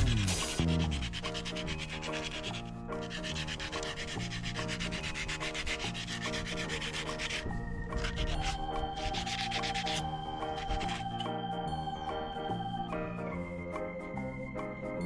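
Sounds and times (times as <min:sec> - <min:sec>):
hand sanding strokes: 0:00.0 - 0:11.0
background music with held notes: 0:00.0 - 0:15.0.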